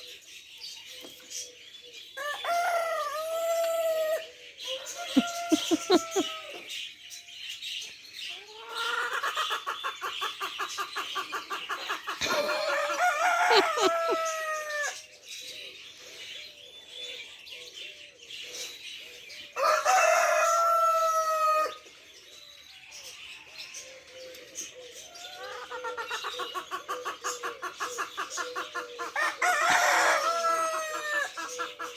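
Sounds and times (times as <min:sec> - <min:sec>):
soft small bird calls: 0:00.0 - 0:31.9
rooster crowing: 0:02.2 - 0:06.7, 0:12.2 - 0:15.0, 0:19.6 - 0:21.8, 0:29.2 - 0:31.5.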